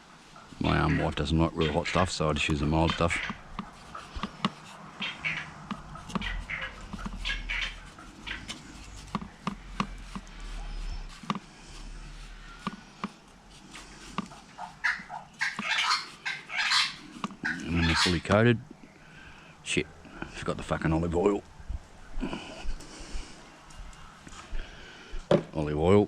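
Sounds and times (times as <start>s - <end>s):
poultry clucking: 0.2s - 11.4s, 13.8s - 18.4s.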